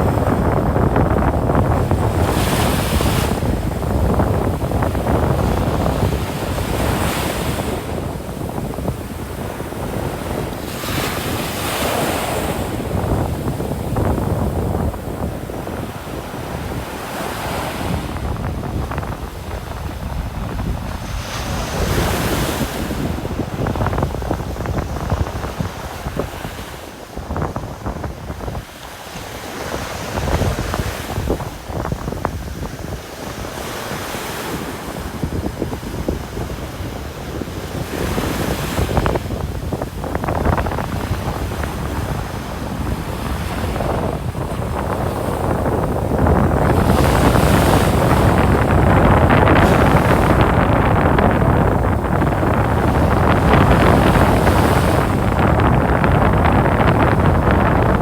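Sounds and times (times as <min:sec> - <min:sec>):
ocean surf washing on beach: 0:00.0 - 0:58.0
wind on microphone: 0:00.0 - 0:58.0.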